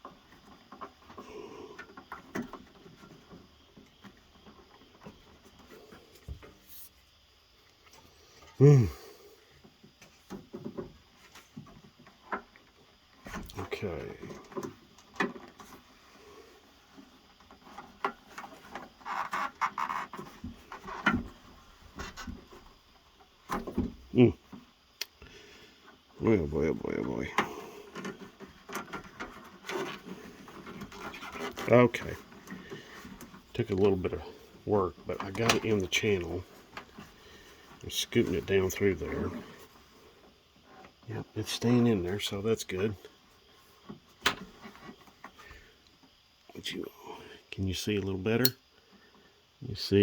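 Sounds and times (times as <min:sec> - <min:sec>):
rubber gasket scraping and rubbing: 0:18.2 - 0:21.0.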